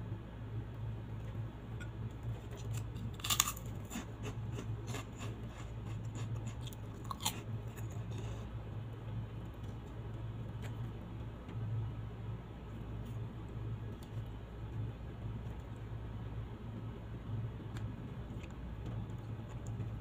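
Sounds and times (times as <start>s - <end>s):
steady low hum: 0.0s - 20.0s
crunching crisp cracker: 1.8s - 8.3s.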